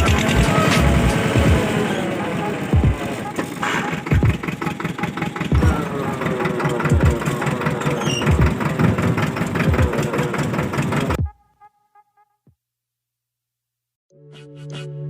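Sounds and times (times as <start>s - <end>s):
tractor engine running: 0.0s - 11.2s.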